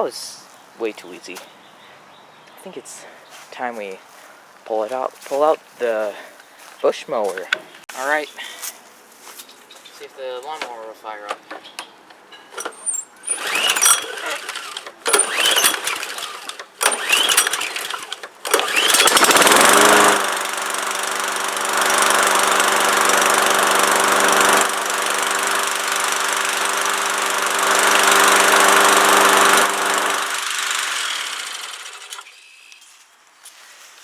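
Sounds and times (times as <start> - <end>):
lawnmower engine cranking and running: 10.4 - 32.3.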